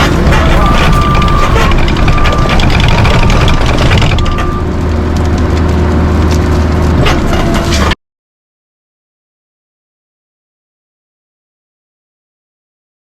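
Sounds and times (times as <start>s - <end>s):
machine engine running: 0.0s - 8.0s.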